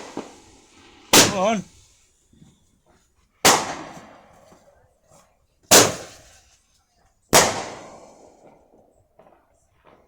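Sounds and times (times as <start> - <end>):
firework explosions: 0.0 - 2.0, 3.4 - 4.7, 5.7 - 6.4, 7.4 - 8.8.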